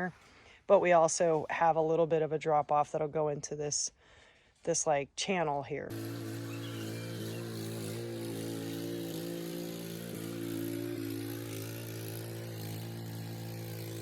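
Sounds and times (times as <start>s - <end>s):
garden tiller engine running: 5.9s - 14.0s.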